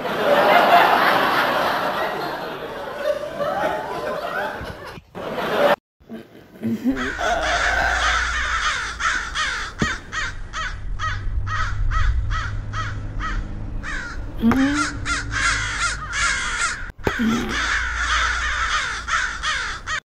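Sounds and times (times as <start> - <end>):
steady low hum: 6.8 - 19.9
birds making harsh calls: 7.0 - 20.0.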